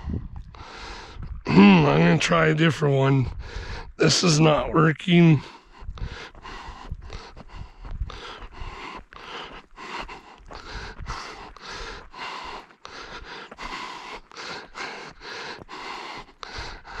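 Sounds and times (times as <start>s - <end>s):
rhythmic panting: 5.5s - 17.0s.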